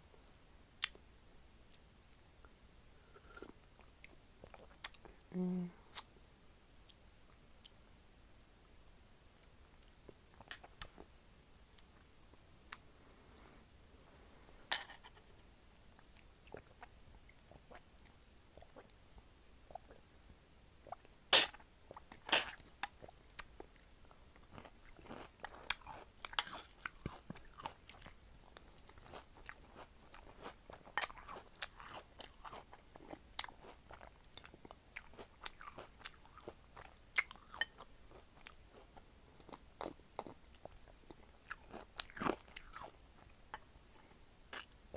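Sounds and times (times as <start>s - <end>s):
chewing and crunching cereal: 20.8s - 43.7s.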